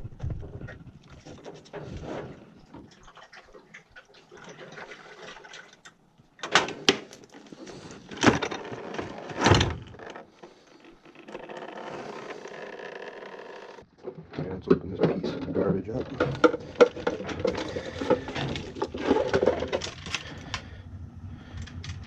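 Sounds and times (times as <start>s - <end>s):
plastic clicks and rustling: 15.9s - 20.7s.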